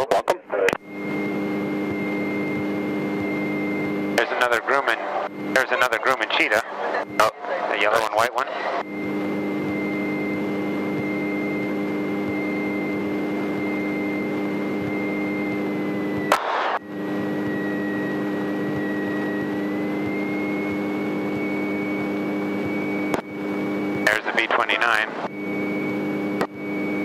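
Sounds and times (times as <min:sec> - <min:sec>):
thin steady whine: 0:00.0 - 0:27.0
light airplane engine running: 0:00.8 - 0:08.2, 0:08.8 - 0:27.0.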